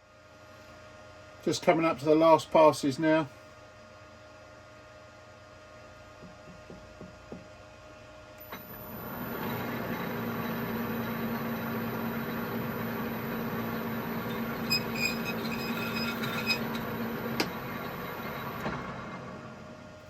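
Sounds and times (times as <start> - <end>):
lathe motor humming: 8.4 - 19.8
cutting tool squeaking: 10.7 - 17.8.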